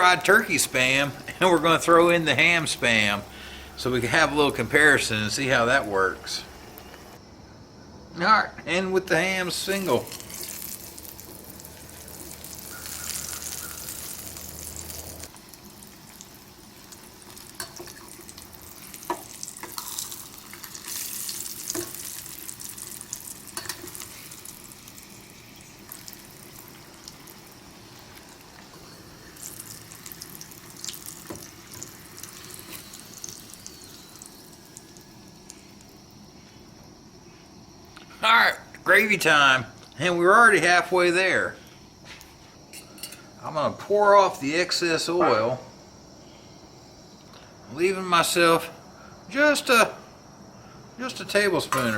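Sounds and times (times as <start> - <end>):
food sizzling in hot oil: 0.0 - 7.2, 9.6 - 36.2.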